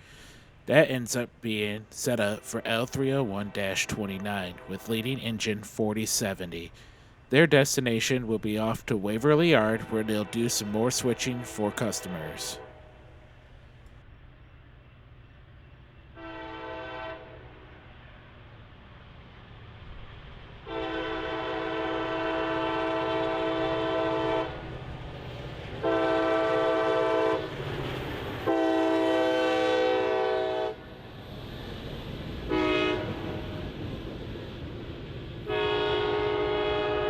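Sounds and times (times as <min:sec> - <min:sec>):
train rumble: 0:00.0 - 0:14.0, 0:15.7 - 0:37.0
locomotive air horn blasts: 0:02.2 - 0:05.3, 0:09.6 - 0:13.1, 0:16.2 - 0:17.4, 0:20.6 - 0:24.6, 0:25.8 - 0:27.5, 0:28.5 - 0:30.8, 0:32.5 - 0:33.6, 0:35.4 - 0:37.0.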